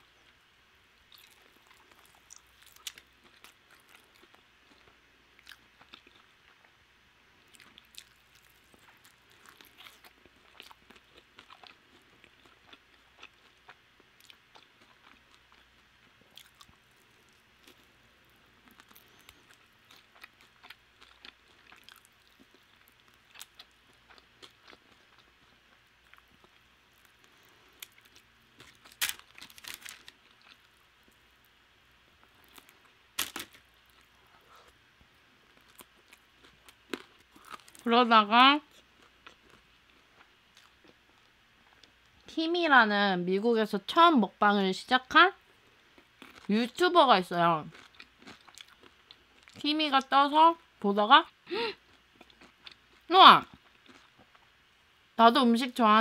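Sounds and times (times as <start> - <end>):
crunchy chewing of chicken wing: 1.1 - 6.8, 7.4 - 31.4, 35.4 - 37.9, 38.6 - 42.1, 45.6 - 46.5, 47.6 - 49.6, 51.8 - 54.6.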